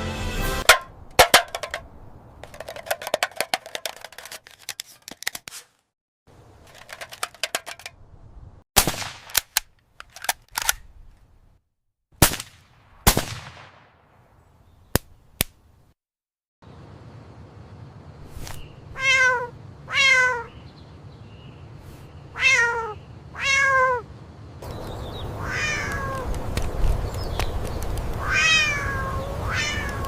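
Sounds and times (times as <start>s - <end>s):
single loud gunshots: 8.8s - 9.3s, 12.2s - 14.0s.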